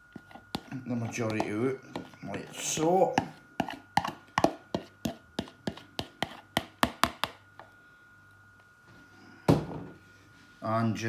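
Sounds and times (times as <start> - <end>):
fork tapping on a bowl: 3.2 - 7.4.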